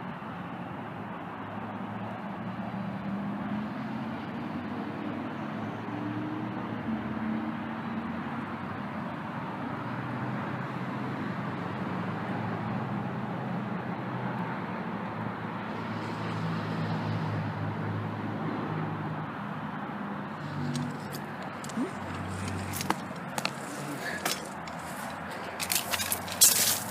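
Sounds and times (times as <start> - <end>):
road noise: 0.0 - 26.9
engine hum: 19.0 - 26.9.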